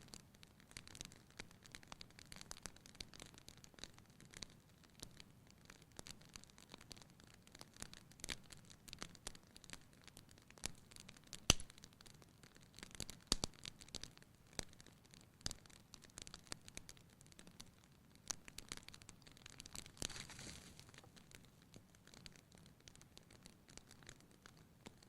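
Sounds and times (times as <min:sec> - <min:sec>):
fire crackling: 0:00.0 - 0:25.0
faint hiss: 0:13.1 - 0:25.0.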